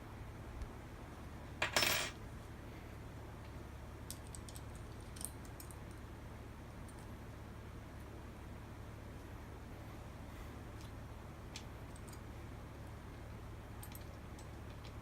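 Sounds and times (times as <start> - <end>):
metal tool set down clatter: 1.6 - 2.2.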